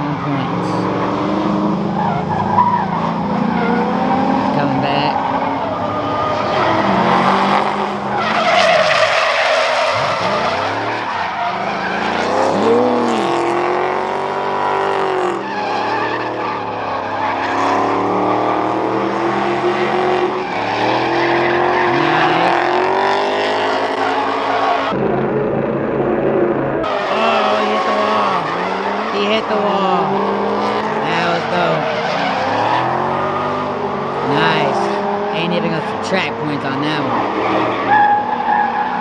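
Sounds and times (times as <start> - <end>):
car engines revving: 0.0 - 39.0
tires screeching: 0.0 - 39.0.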